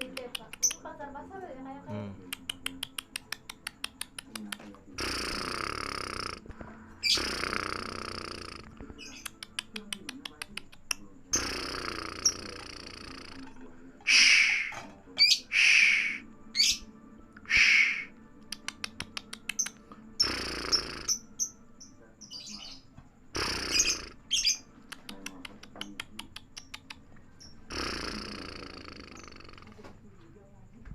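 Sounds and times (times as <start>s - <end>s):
rapid clicking trills: 0.0s - 0.9s, 2.4s - 14.7s, 17.4s - 21.6s
lovebird screechy calls: 7.0s - 9.6s, 11.3s - 13.4s, 14.0s - 18.2s, 19.5s - 21.6s, 22.2s - 24.7s, 26.5s - 29.8s
thin high whistles: 14.0s - 14.8s, 15.5s - 16.3s, 17.4s - 18.1s.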